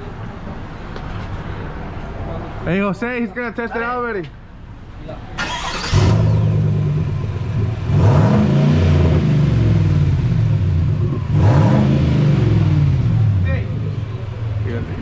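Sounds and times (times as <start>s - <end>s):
vehicle engine starting and idling: 5.2s - 15.0s
engine revving: 5.4s - 15.0s.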